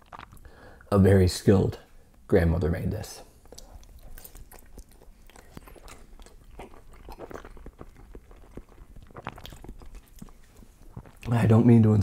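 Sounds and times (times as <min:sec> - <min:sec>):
chewing mouth clicks: 0:00.0 - 0:00.5, 0:03.4 - 0:11.3.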